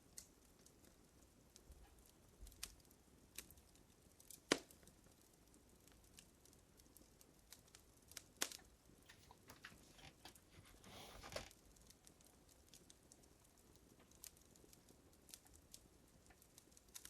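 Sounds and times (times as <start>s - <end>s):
wood fire crackling: 0.0s - 17.0s
soft hiss: 8.1s - 17.0s.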